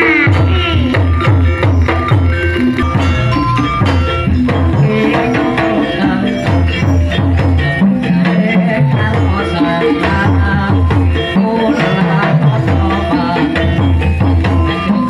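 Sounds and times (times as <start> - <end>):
hand drums: 0.0 - 15.0.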